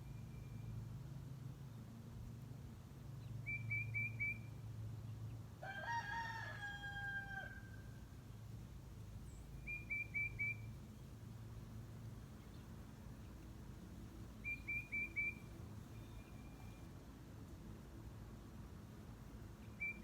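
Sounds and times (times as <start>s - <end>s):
songbird singing: 0.0s - 1.9s, 3.1s - 5.5s, 8.0s - 17.0s, 19.2s - 20.0s
rooster crowing: 5.6s - 8.0s.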